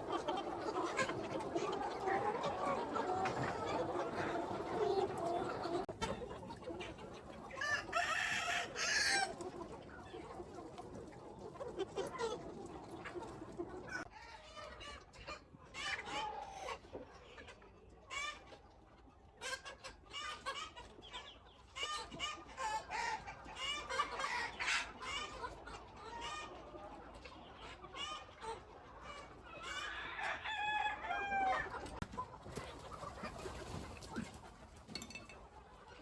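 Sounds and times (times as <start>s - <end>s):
chickens clucking: 0.0s - 36.0s
rooster crowing: 30.2s - 31.6s.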